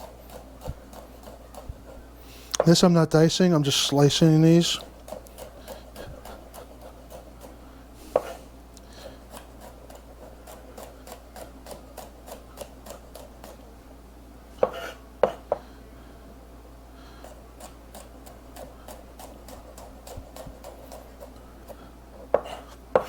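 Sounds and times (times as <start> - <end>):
knife tapping on cutting board: 14.6 - 15.6, 22.3 - 23.0.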